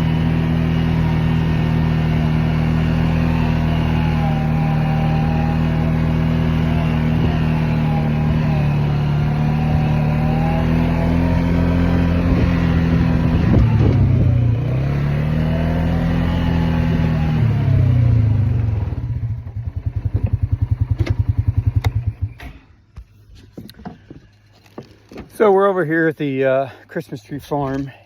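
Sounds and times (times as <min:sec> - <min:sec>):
small vehicle engine running: 0:00.0 - 0:23.1.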